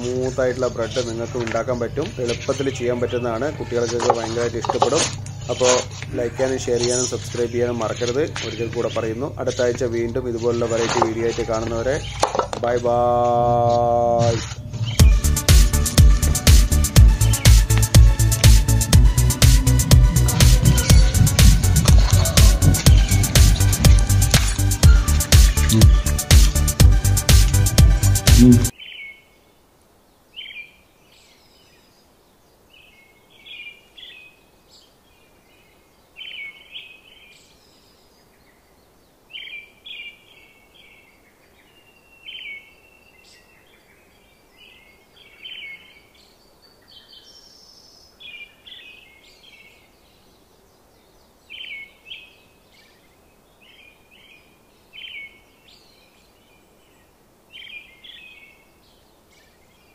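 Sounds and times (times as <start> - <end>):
birds chirping: 0.0 - 59.9
faint steady hiss: 28.4 - 59.9.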